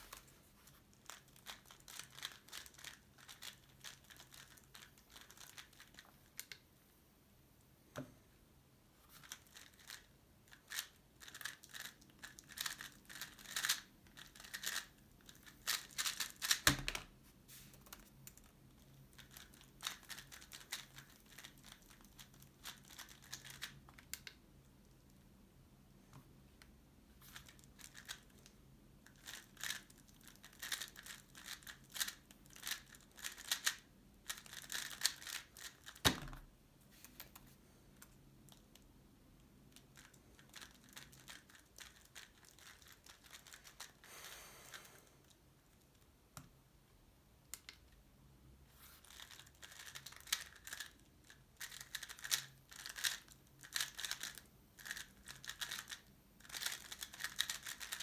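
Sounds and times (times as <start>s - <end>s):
puzzle cube plastic clicks: 9.2s - 17.1s, 17.8s - 24.4s, 29.1s - 36.1s, 39.8s - 44.0s, 49.1s - 58.0s.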